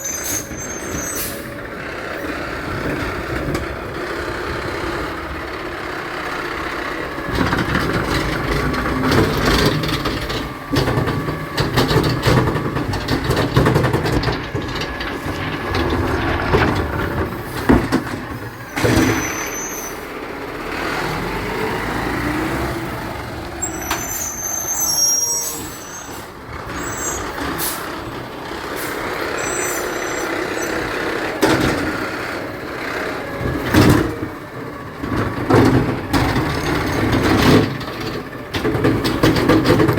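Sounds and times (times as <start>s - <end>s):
garbage truck engine rumbling: 0.0s - 39.9s
clanks and knocks from truck: 2.6s - 5.5s, 6.7s - 19.6s, 26.1s - 39.9s
short high squeaks or hisses: 19.0s - 20.0s, 23.6s - 27.3s, 29.4s - 30.8s.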